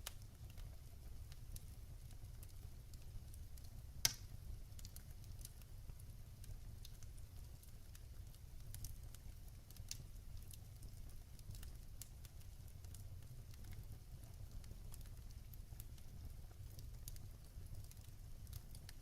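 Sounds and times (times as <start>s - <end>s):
wood fire crackling: 0.0s - 19.0s
loud pop from fire: 4.0s - 4.4s.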